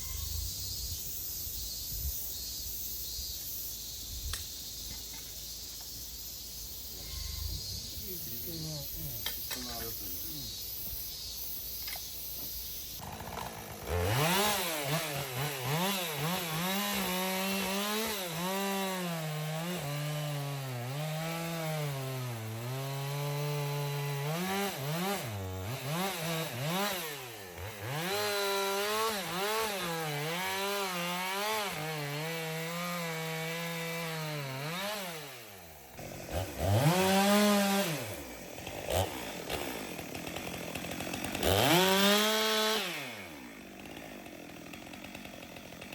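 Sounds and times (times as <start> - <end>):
chainsaw cutting wood: 11.2 - 45.9.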